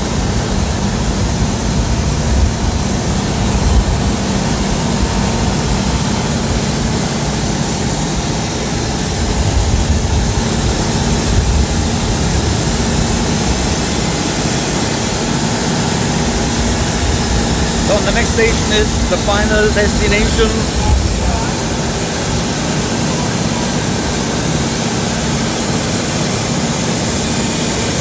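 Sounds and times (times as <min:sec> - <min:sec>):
thin high whine: 0:12.2 - 0:24.9
boat diesel engine rumbling: 0:14.4 - 0:23.9.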